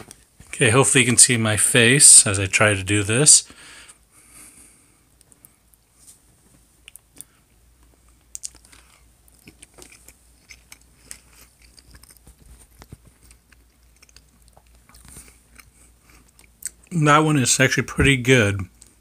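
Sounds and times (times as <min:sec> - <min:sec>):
person chewing food: 0:06.8 - 0:16.9.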